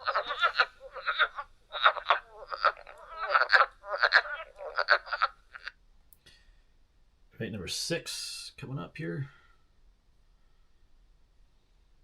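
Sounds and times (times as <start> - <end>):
frogs croaking: 0.0 - 5.8.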